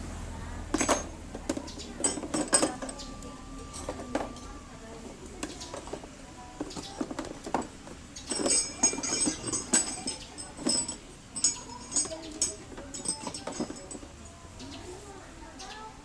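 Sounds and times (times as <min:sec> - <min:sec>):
metallic clinks of hand tools: 0:00.8 - 0:04.6, 0:05.4 - 0:14.2.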